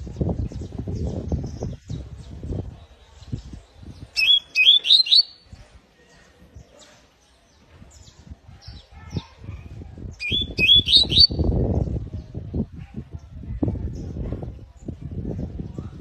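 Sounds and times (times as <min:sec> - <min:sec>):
canary chirping: 0:04.1 - 0:05.5, 0:10.2 - 0:11.5.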